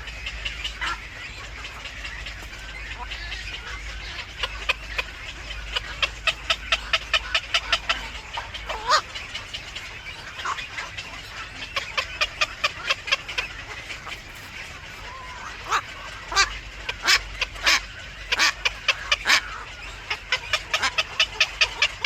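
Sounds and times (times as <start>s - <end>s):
long dipping bird call: 3.0s - 22.0s.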